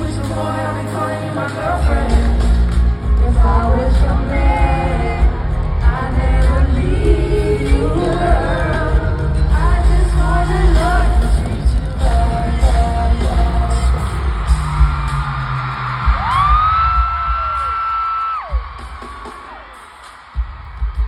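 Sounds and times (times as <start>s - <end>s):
live pop music with heavy bass: 0.0s - 21.0s.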